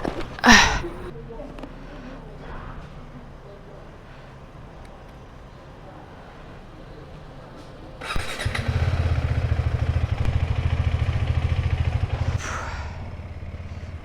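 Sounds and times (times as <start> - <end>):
motorcycle engine starting and idling: 7.6 - 14.0.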